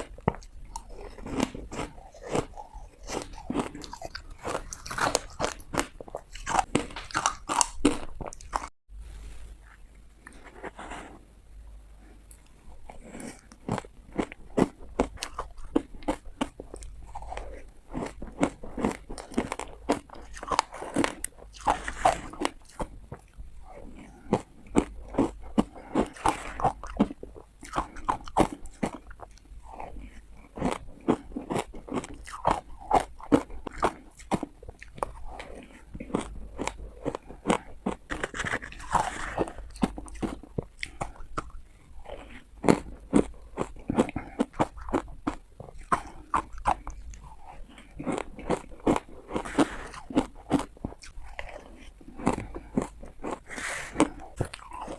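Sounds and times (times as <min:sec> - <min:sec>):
ice being bitten and crunched: 0:00.0 - 0:08.7, 0:30.6 - 0:41.5.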